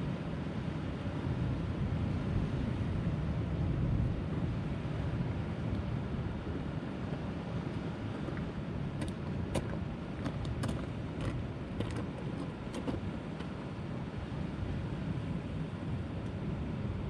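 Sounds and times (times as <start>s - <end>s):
wind buffeting microphone: 2.8s - 15.1s.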